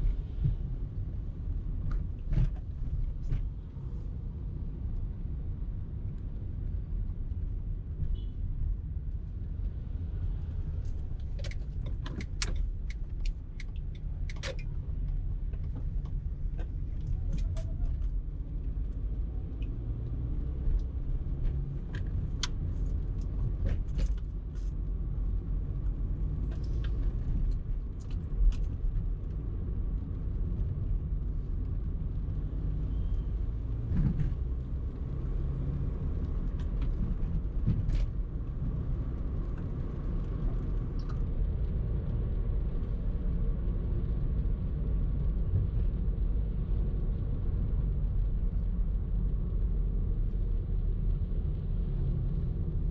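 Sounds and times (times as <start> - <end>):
car engine and road rumble: 0.0 - 52.9
sharp clicks and knocks: 11.2 - 14.7.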